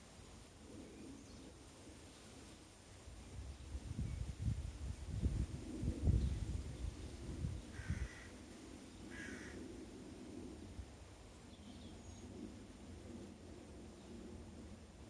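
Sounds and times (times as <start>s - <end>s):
faint outdoor background: 0.0s - 15.0s
low rumble on microphone: 3.2s - 8.3s
crow cawing: 7.7s - 8.5s, 9.1s - 9.6s.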